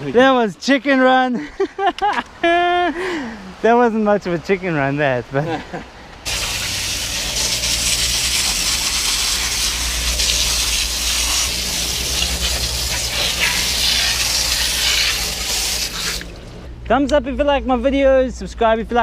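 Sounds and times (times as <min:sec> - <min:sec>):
low steady hum: 0:05.5 - 0:19.0.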